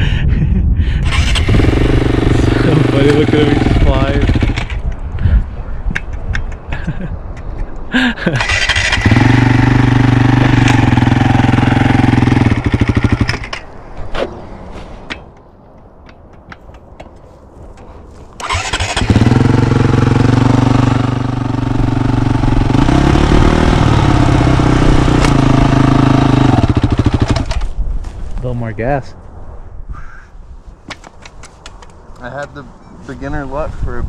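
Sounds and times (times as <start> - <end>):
small engine running: 1.1 - 4.7.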